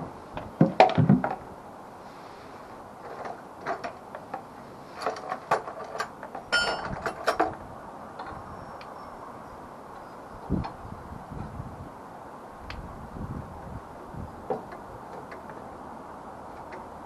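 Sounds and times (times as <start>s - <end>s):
hand tools clinking on metal: 5.0s - 7.5s
metallic ring: 6.5s - 6.9s.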